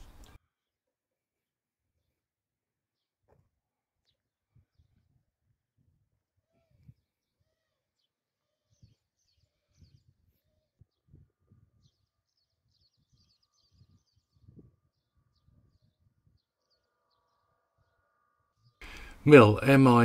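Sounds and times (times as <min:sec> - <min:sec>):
faint small bird chirps: 0:06.4 - 0:18.8.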